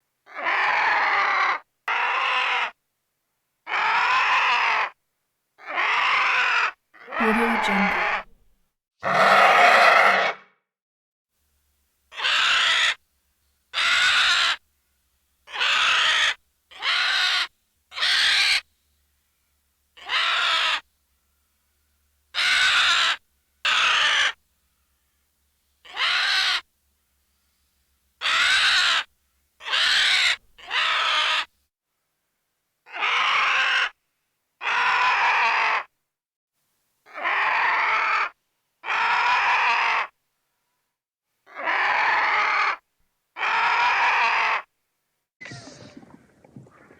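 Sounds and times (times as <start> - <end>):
bird squawking harshly: 12.1 - 13.0, 15.5 - 18.6, 22.4 - 24.4, 25.9 - 26.6, 28.2 - 31.5.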